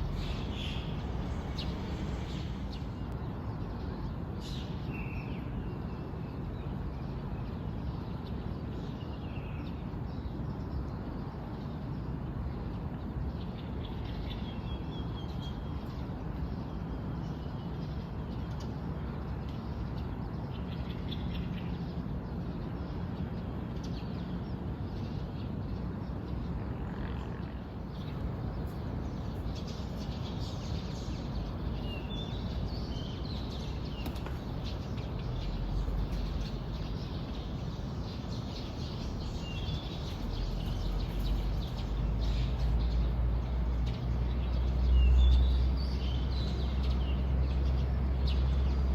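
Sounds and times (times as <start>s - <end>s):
steady low rumble: 0.0s - 3.4s, 27.6s - 44.8s
small birds chirping: 0.0s - 5.8s, 27.8s - 48.9s.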